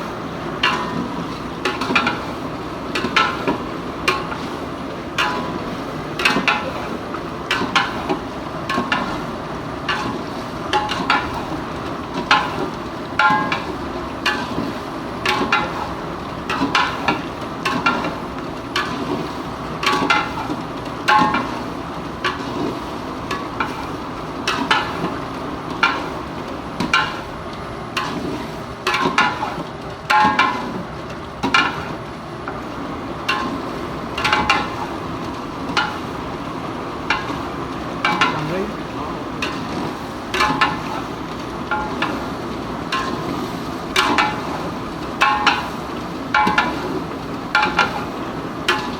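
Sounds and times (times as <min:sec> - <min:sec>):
frying sizzle: 0:00.0 - 0:48.9.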